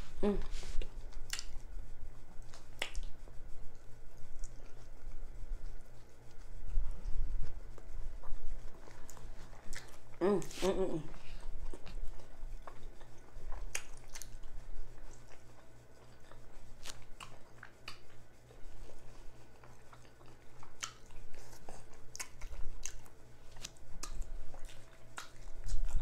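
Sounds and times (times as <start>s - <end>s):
low steady hum: 0.0s - 26.0s
close chewing: 0.6s - 3.3s, 4.2s - 26.0s
wet mouth clicks and smacks: 1.3s - 1.6s, 2.5s - 3.2s, 16.8s - 18.1s, 22.2s - 26.0s.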